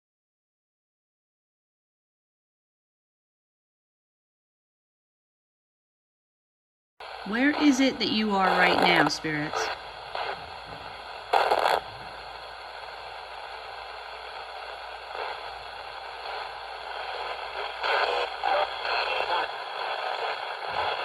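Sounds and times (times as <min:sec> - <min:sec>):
radio static hiss: 0:07.0 - 0:21.0
snatches of radio stations: 0:07.0 - 0:21.0.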